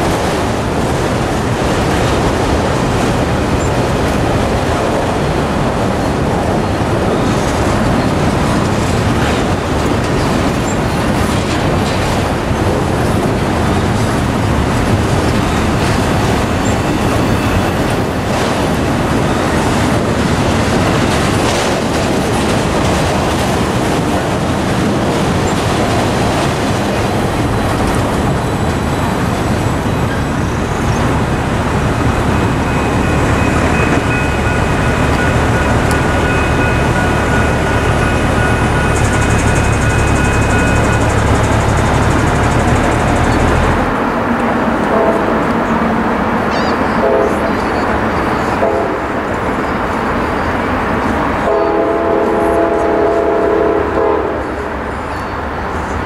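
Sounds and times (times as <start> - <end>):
clickety-clack over rail joints: 0.0 - 56.0
freight train wheels rumbling: 0.0 - 56.0.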